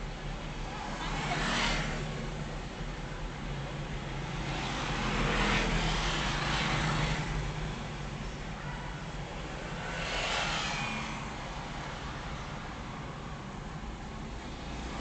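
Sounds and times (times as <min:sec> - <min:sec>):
car engine and road hum: 0:00.0 - 0:15.0.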